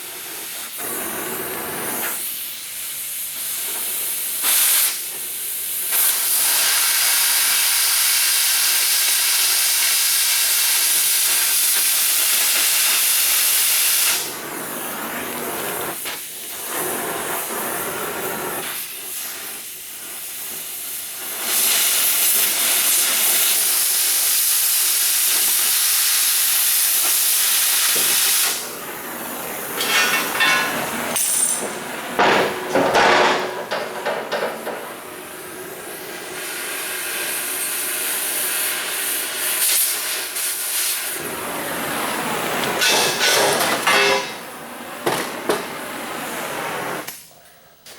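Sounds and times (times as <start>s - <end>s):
cutting torch hissing: 0.0s - 47.2s
metal knocks and clatter: 29.8s - 34.9s.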